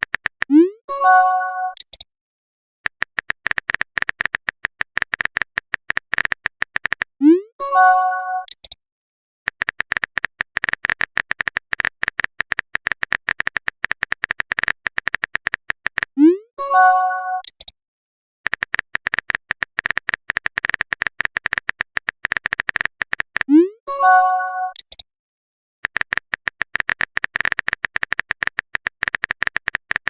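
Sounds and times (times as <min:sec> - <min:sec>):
phone keyboard typing clicks: 0:00.0 - 0:00.5, 0:01.6 - 0:02.1, 0:02.9 - 0:07.2, 0:09.5 - 0:16.2, 0:17.4 - 0:17.8, 0:18.5 - 0:23.5, 0:24.6 - 0:25.0, 0:25.8 - 0:30.0
message sent chime: 0:00.9 - 0:01.8, 0:07.6 - 0:08.5, 0:16.6 - 0:17.4, 0:23.9 - 0:24.8.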